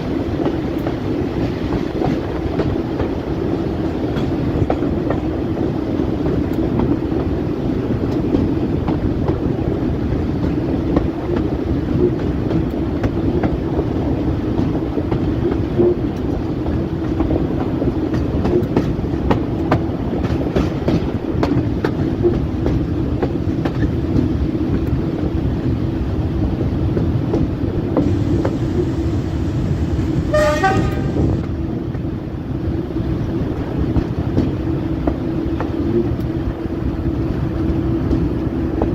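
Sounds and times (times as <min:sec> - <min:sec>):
diesel locomotive rumbling: 0:00.0 - 0:38.9
rail clicks: 0:00.0 - 0:38.9
train horn blast: 0:30.2 - 0:31.5.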